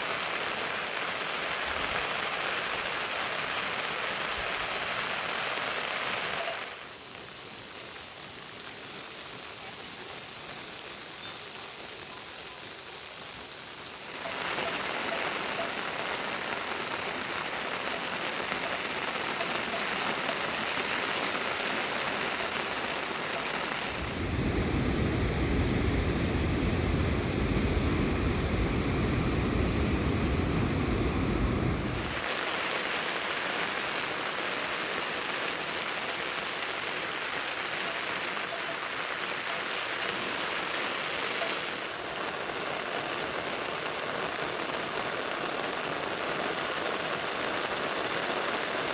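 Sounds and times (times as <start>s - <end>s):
rain falling: 0.0s - 48.9s
heavier rain rush: 13.9s - 48.9s.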